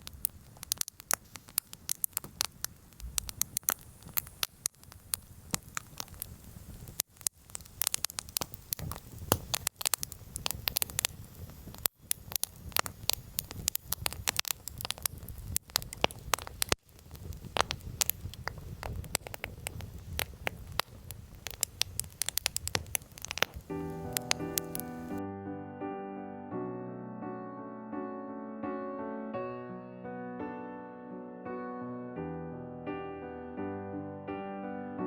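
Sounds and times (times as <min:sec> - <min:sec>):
campfire crackling and popping: 0:00.0 - 0:25.2
low rumble of burning: 0:00.0 - 0:25.2.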